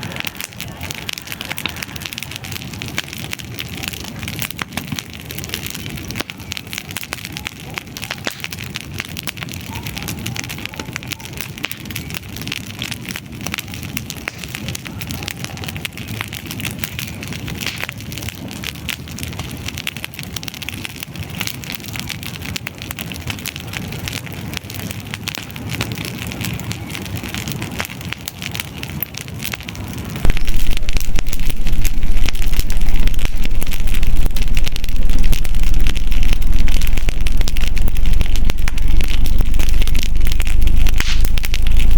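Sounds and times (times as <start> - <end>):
campfire crackling: 0.0 - 41.9
loud low rumble: 30.3 - 41.9.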